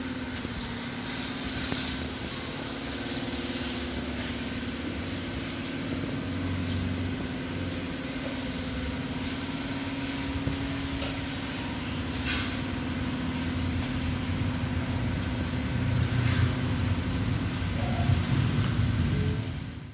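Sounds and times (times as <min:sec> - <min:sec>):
machine humming and rumbling: 0:00.0 - 0:19.9.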